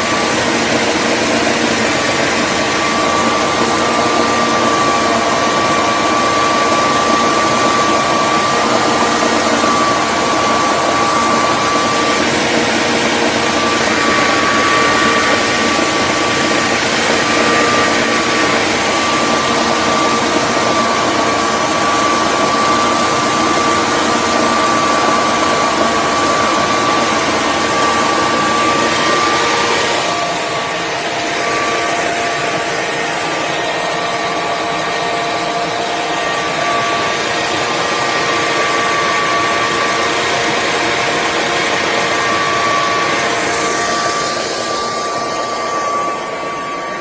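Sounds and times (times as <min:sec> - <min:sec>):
generator droning with high whine: 0:00.0 - 0:47.0.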